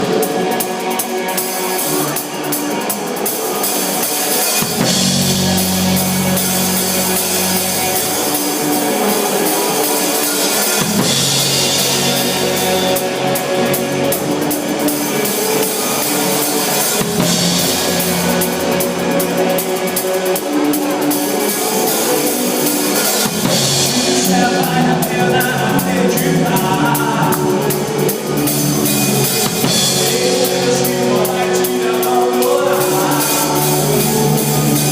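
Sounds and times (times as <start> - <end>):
band music with drum kit: 0.0 - 34.9
low bass line: 4.7 - 8.6, 10.8 - 16.0, 17.0 - 19.6, 23.4 - 34.9.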